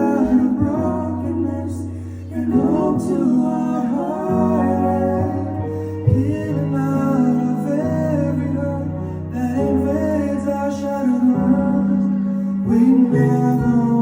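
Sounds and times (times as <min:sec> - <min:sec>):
guitar accompaniment: 0:00.0 - 0:14.0
person singing: 0:00.0 - 0:14.0.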